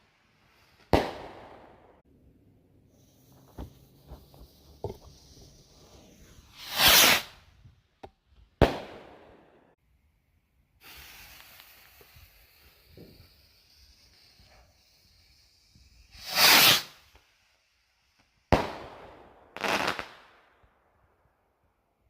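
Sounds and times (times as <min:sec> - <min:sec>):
small firework cracks: 0:00.8 - 0:02.0, 0:08.6 - 0:09.7, 0:10.8 - 0:14.9, 0:16.0 - 0:17.4, 0:18.2 - 0:20.8
firework rushing whoosh: 0:03.0 - 0:07.4, 0:15.8 - 0:17.0
faint steady hiss: 0:09.2 - 0:20.9.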